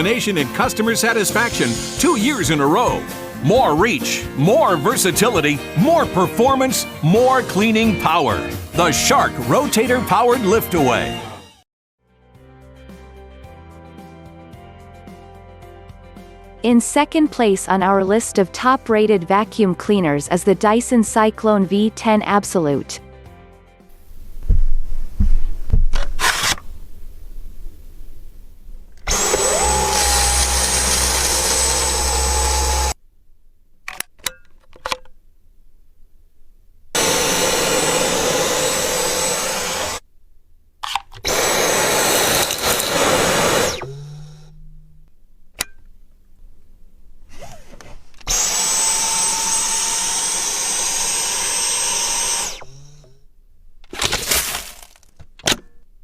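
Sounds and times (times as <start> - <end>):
stick vacuum running: 29.0 - 33.0, 37.0 - 40.0, 41.2 - 44.8.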